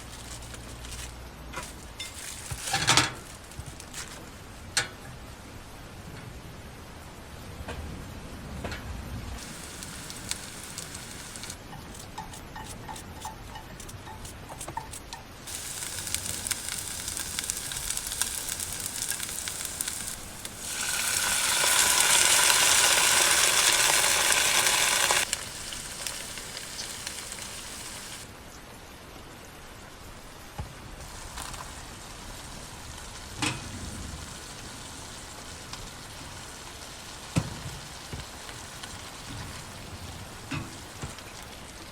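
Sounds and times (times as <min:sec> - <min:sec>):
food sizzling in a frying pan: 0:09.4 - 0:12.0, 0:15.5 - 0:28.3, 0:31.0 - 0:41.5.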